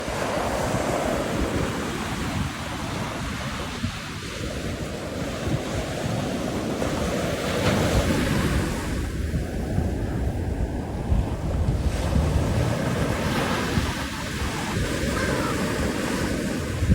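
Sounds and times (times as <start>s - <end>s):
surf washing on beach: 0.0s - 16.9s
wind buffeting microphone: 0.0s - 16.9s.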